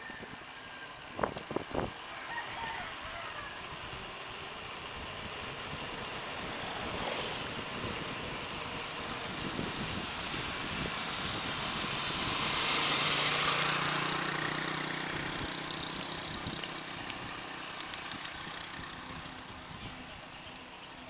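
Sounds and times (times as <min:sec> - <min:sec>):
wind rushing over microphone: 0:01.1 - 0:02.0, 0:04.8 - 0:20.4.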